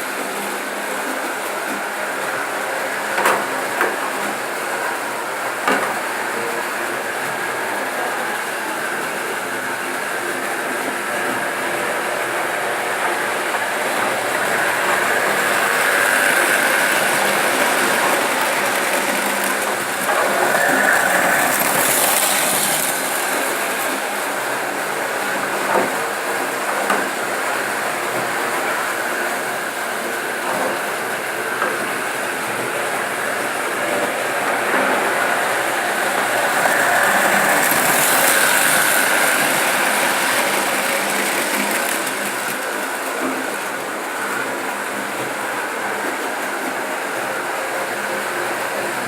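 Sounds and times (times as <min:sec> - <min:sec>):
wheels rattling on rails: 0:00.0 - 0:49.0
model train motor whine: 0:01.0 - 0:49.0.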